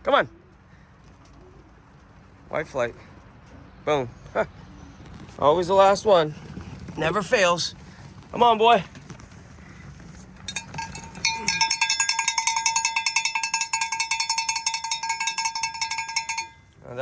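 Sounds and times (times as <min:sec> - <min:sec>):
rapid metallic ringing rattle: 0:10.4 - 0:16.8.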